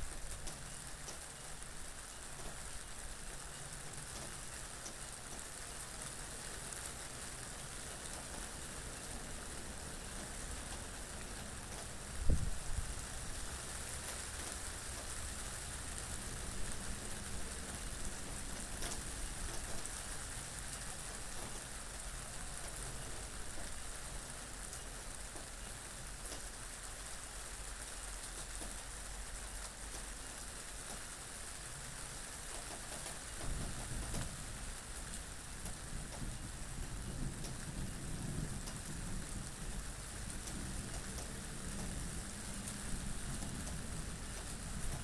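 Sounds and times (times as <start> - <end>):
steady rain hiss: 0.0 - 45.0
low wind rumble: 12.1 - 13.0
raindrop clicks: 37.4 - 37.6.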